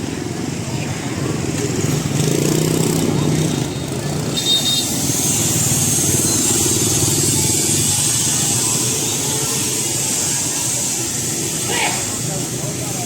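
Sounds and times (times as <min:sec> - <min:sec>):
motorbike engines running: 0:00.0 - 0:13.0
street noise hiss: 0:00.0 - 0:13.0.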